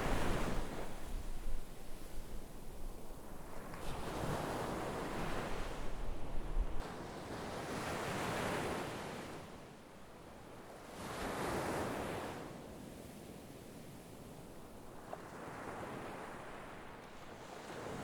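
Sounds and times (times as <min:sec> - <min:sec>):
wind rumble on microphone: 0:00.0 - 0:06.9
sea waves breaking on shore: 0:00.0 - 0:09.7, 0:14.9 - 0:18.0.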